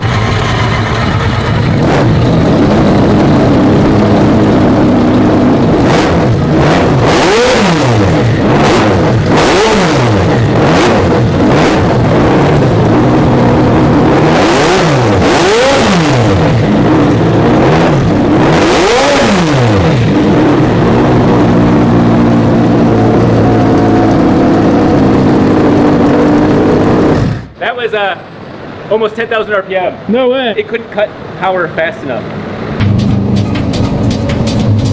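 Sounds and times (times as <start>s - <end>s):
rotary engine revving: 0.0s - 27.6s
sharp exhaust cracks: 0.0s - 29.3s, 32.4s - 34.9s.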